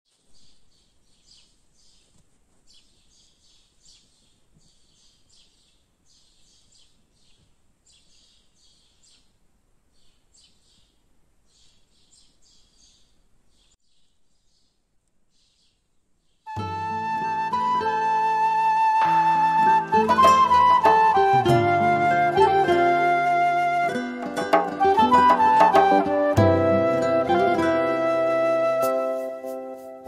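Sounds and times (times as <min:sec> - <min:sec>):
small birds chirping: 0:00.1 - 0:16.6.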